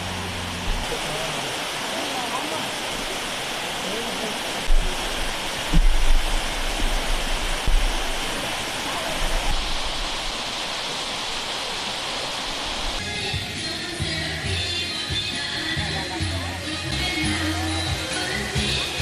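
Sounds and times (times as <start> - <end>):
low rumbles: 0.0 - 1.9
waterfall rushing: 0.0 - 19.0.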